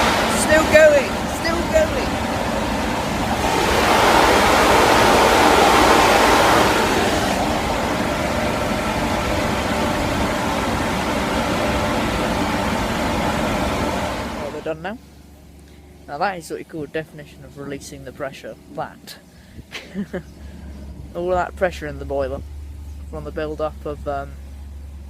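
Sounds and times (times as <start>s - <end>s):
steam hissing from locomotive: 0.0s - 14.6s.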